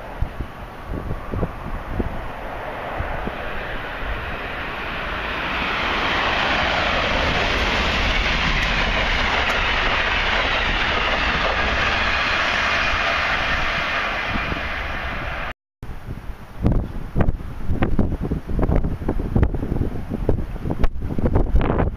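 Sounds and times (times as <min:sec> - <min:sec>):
train passing at speed: 0:00.0 - 0:15.6.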